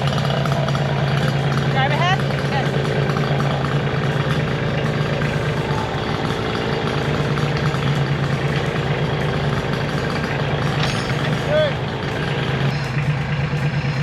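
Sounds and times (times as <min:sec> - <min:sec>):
engine humming steadily: 0:00.0 - 0:14.0.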